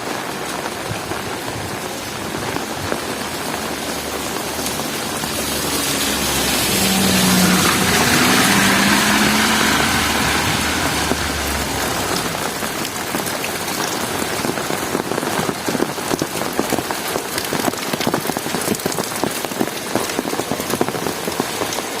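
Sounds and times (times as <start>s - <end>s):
heavy rain: 0.0s - 22.0s
raindrops ticking: 0.0s - 22.0s
vehicle engine passing: 3.2s - 13.8s.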